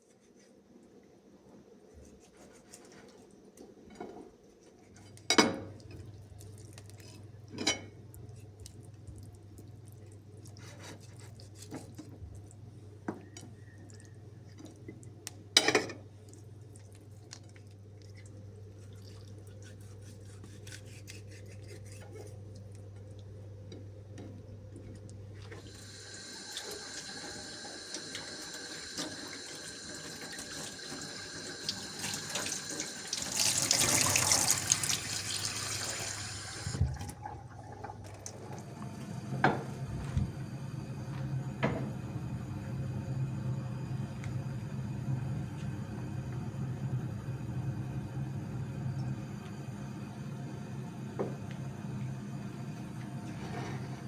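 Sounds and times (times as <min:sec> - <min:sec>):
water running into sink: 0:25.5 - 0:40.4.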